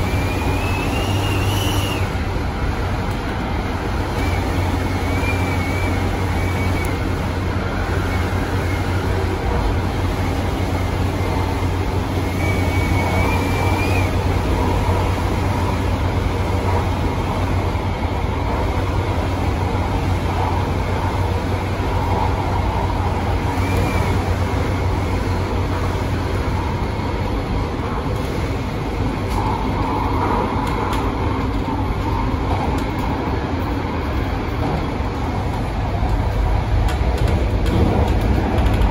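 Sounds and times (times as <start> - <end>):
train running on rails: 0.0 - 38.9.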